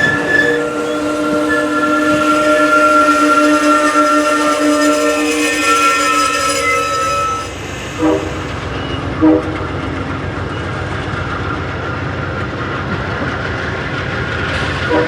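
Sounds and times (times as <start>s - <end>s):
locomotive horn blasts: 0.0s - 8.6s, 9.2s - 9.8s
train rumbling past: 0.0s - 15.0s.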